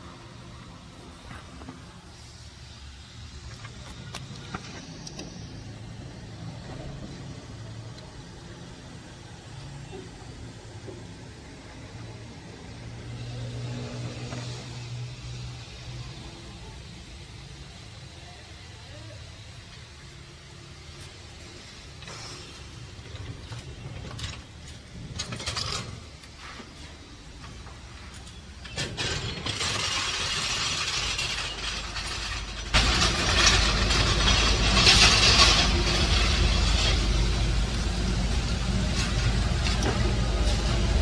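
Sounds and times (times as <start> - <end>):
engine idling: 27.4 - 41.0.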